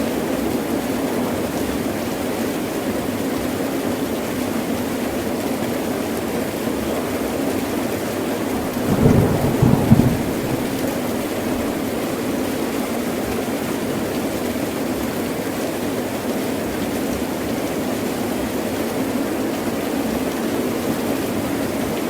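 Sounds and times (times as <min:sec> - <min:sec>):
heavy rain pouring: 0:00.0 - 0:22.0
thunder rumble: 0:08.6 - 0:11.9.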